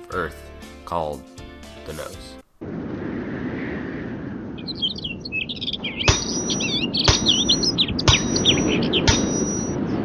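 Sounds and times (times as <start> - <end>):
songbirds chirping: 4.5 - 10.0
sharp tap with high ring: 6.1 - 9.8.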